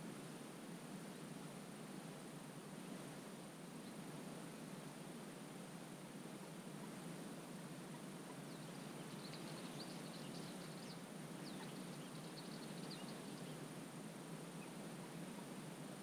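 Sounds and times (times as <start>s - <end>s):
wetland background hiss: 0.0s - 16.0s
small birds twittering: 8.4s - 13.6s.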